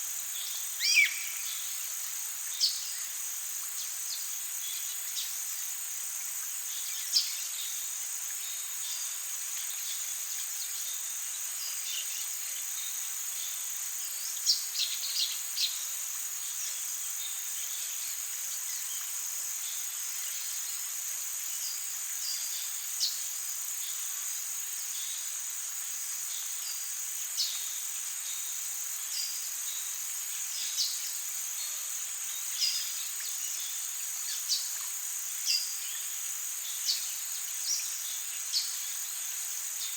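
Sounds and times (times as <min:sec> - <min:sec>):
high-pitched insect chorus: 0:00.0 - 0:39.9
downward-sweeping bird calls: 0:00.8 - 0:01.4.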